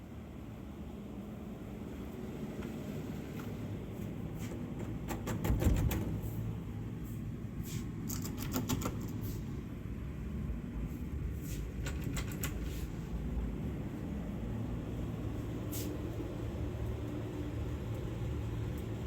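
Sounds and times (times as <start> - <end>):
steady low rumble: 12.9 - 19.0.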